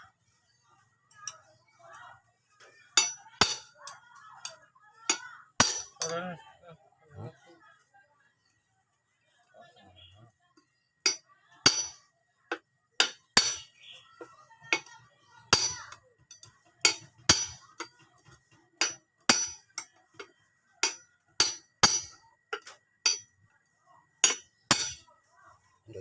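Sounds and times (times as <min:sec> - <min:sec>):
hammer striking metal: 0:03.0 - 0:03.7, 0:05.1 - 0:06.1, 0:11.1 - 0:13.7, 0:15.5 - 0:20.2, 0:20.8 - 0:23.3, 0:24.2 - 0:25.1.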